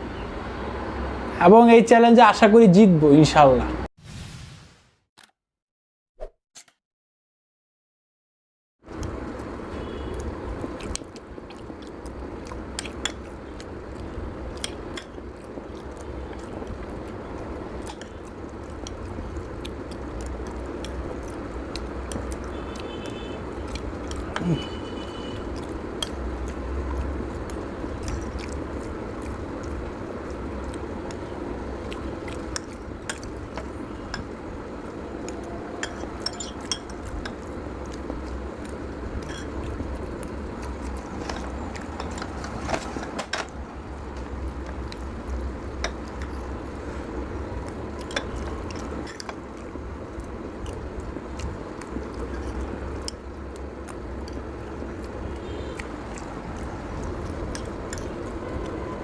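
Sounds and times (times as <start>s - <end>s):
chewing: 8.9s - 42.6s, 44.0s - 59.0s
cutlery clinking on a plate: 35.8s - 36.9s.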